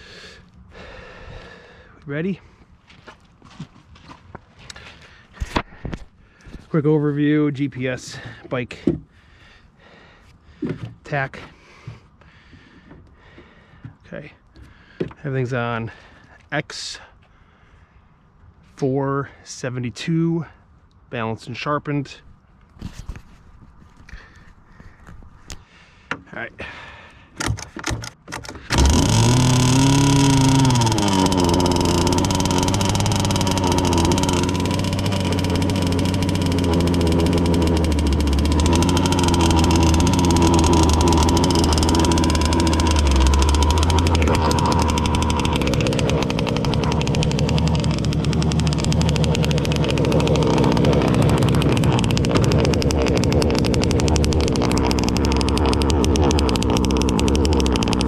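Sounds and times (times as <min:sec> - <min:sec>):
boat two-stroke engine running: 0:28.6 - 0:58.0.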